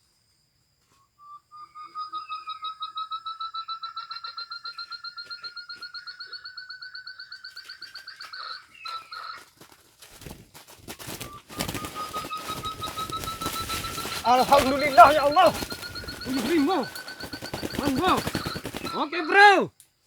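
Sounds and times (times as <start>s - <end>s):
whistled quail call: 1.1s - 9.6s, 11.0s - 19.6s
rustling and thrashing in a net: 9.5s - 19.0s.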